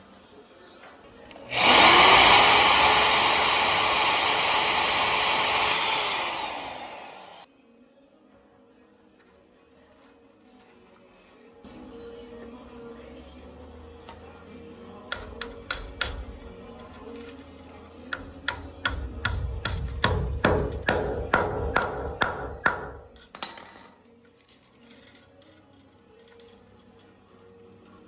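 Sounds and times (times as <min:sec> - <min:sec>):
hammer driving nails into wood: 0:18.2 - 0:23.2.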